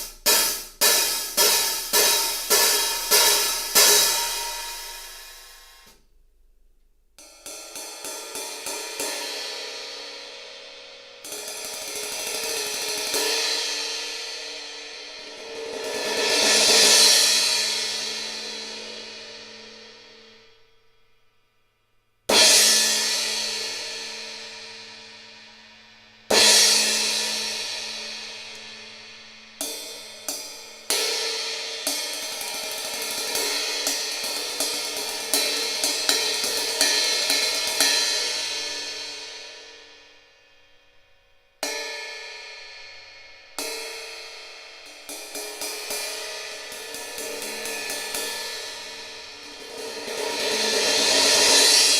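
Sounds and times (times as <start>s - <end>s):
cymbal strikes ringing: 0.0s - 6.0s, 26.3s - 40.0s, 41.6s - 51.9s
quick repeated cymbal strokes: 43.7s - 51.9s.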